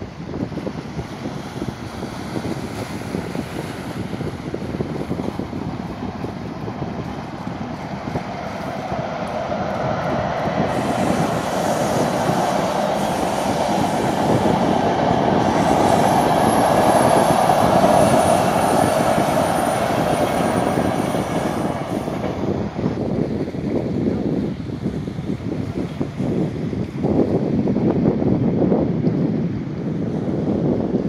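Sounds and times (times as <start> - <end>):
passing train rumble: 0.0 - 31.0
high-pitched wheel squeal: 10.7 - 22.2.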